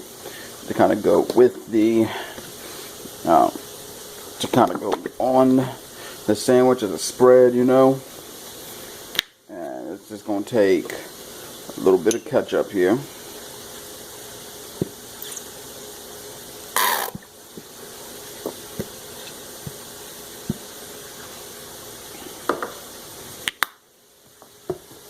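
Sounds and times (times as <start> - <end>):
chicken frying in oil: 0.0 - 25.0
ketchup squirting from squeeze bottle: 16.8 - 17.3.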